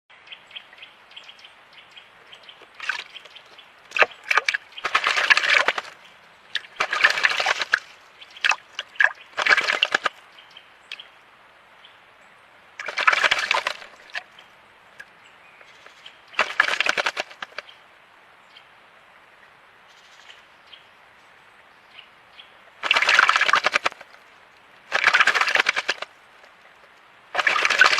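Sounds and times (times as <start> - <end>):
birds splashing in water: 2.4 - 10.3, 12.8 - 17.7, 22.8 - 27.9
trickle of running water: 2.5 - 10.2, 12.8 - 15.1, 15.9 - 17.6, 22.8 - 27.9.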